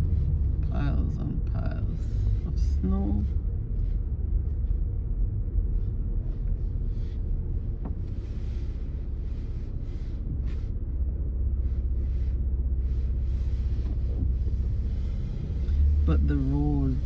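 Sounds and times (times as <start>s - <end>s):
car cabin rumble: 0.0s - 17.0s.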